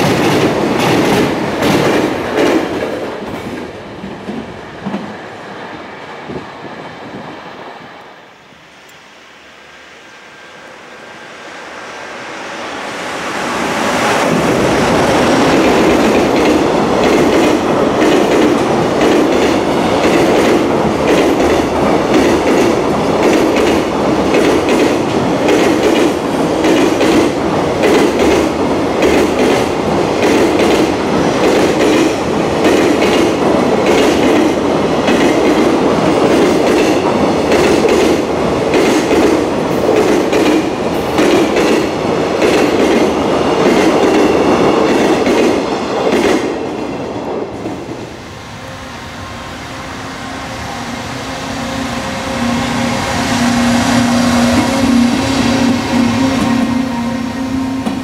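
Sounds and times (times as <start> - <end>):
freight train rumbling past: 0.0 - 58.0
wheels clacking on rail joints: 14.2 - 46.6.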